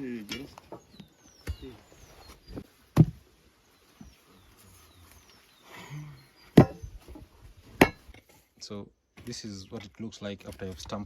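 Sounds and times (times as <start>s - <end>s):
dull thuds of pole tamping: 2.5s - 3.2s, 6.6s - 8.2s.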